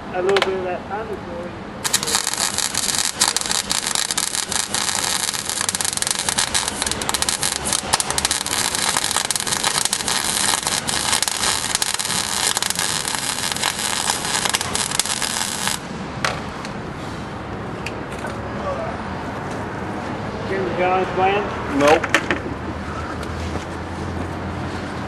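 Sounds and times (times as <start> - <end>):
welding arc crackling: 1.8 - 16.0.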